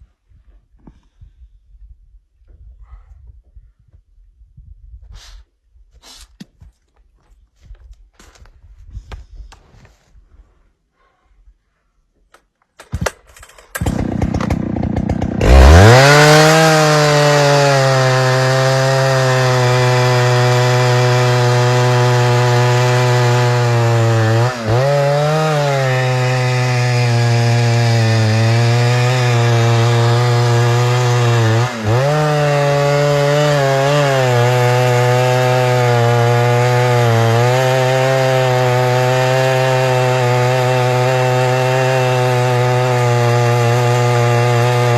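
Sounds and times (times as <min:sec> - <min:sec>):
chainsaw clicks: 0:12.3 - 0:16.2
chainsaw engine revving: 0:13.0 - 0:44.9.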